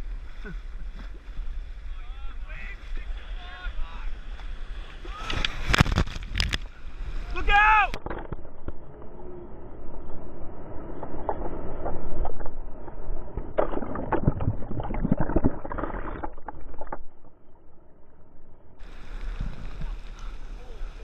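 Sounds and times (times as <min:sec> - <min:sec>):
muffled churning surf: 0:00.0 - 0:21.0.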